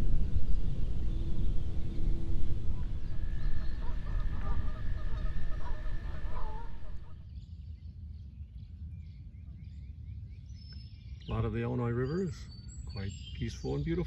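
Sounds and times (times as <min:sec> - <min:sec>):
heavy low rumble: 0:00.0 - 0:07.3
waterfowl honking: 0:02.7 - 0:07.2.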